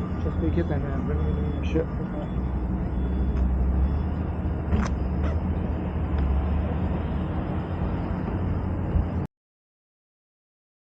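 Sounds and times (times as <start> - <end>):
road and wind noise: 0.0 - 9.3
vehicle engine rumbling: 0.0 - 9.3.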